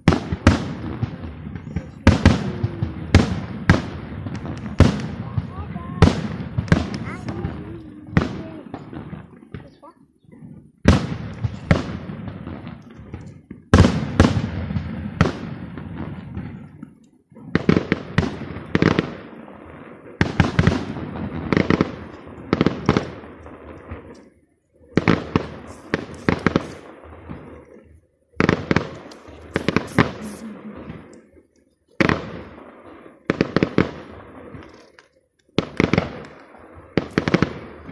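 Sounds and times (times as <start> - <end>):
firework shells bursting: 0.0 - 10.0, 28.4 - 32.6.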